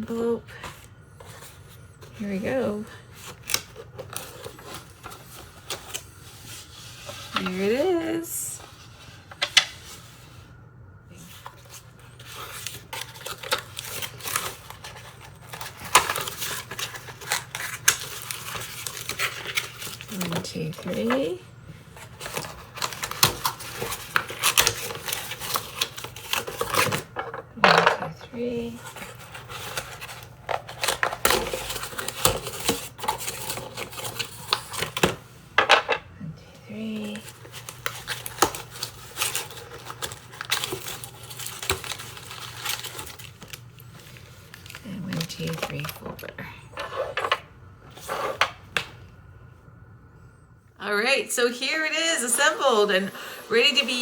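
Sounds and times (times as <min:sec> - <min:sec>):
packaging rustling: 0:00.7 - 0:07.6, 0:11.2 - 0:27.7, 0:28.4 - 0:35.9, 0:36.8 - 0:46.3.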